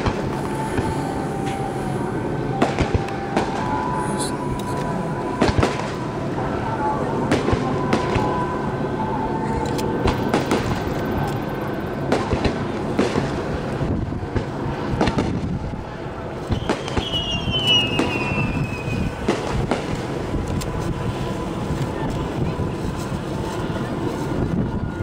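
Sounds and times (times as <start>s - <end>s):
descending firework whistle: 0.0s - 25.0s
firework crackle: 0.0s - 25.0s
firework shells bursting: 16.5s - 20.6s.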